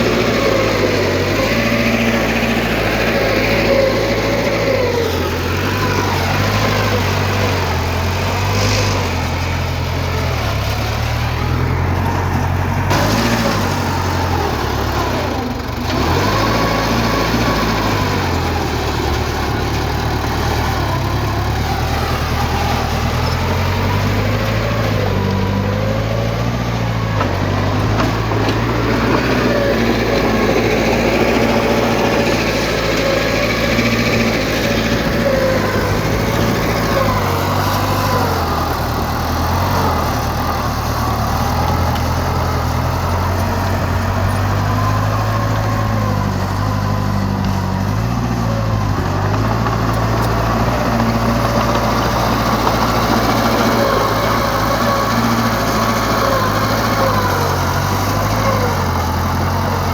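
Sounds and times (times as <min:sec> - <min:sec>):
heavy machinery diesel engine: 0:00.0 - 0:59.9.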